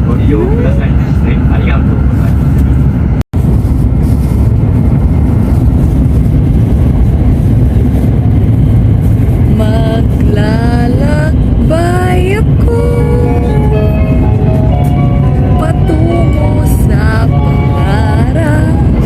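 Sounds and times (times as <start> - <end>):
train rumbling at speed: 0.0 - 19.0
sung melody: 9.7 - 19.0.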